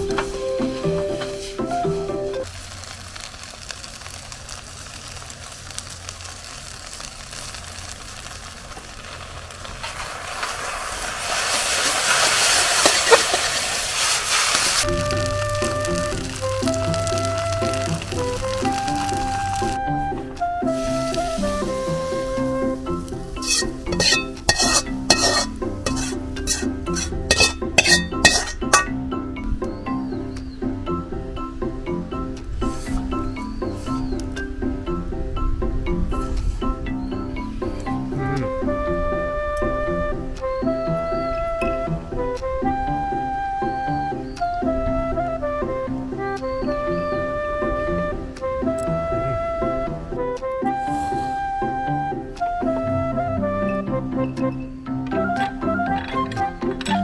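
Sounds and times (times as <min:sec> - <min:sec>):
background music: 0:00.0 - 0:02.5, 0:14.8 - 0:57.0
food sizzling in a wok: 0:00.0 - 0:19.8, 0:20.6 - 0:29.1, 0:32.6 - 0:34.7, 0:50.8 - 0:51.5
metal utensil scraping a wok: 0:11.2 - 0:14.8, 0:21.6 - 0:29.0, 0:32.6 - 0:34.2, 0:55.1 - 0:57.0.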